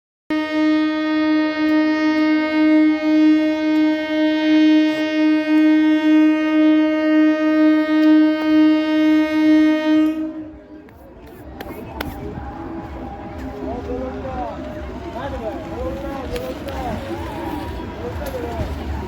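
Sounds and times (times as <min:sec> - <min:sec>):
train horn long note: 0:00.3 - 0:10.7.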